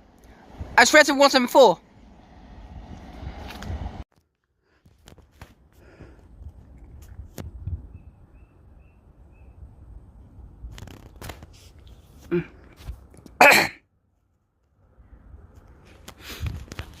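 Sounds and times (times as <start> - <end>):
faint low rumble: 1.8 - 4.0
person sneezing: 12.3 - 12.6, 13.4 - 13.8.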